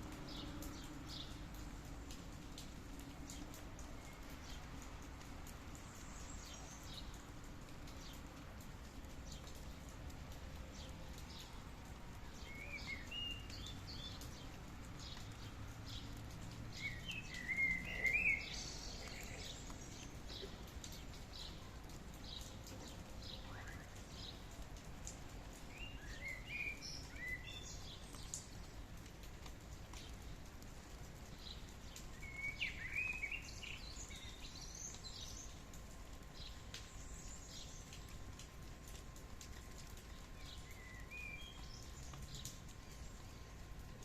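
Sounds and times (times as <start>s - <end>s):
rain pattering: 0.0s - 44.0s
bird chirping: 16.8s - 21.6s.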